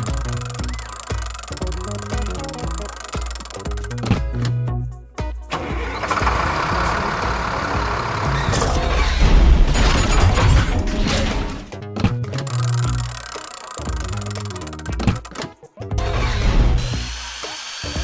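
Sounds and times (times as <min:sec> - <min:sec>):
background music: 0:00.0 - 0:18.0
noisy engine deep rumble: 0:05.7 - 0:11.0.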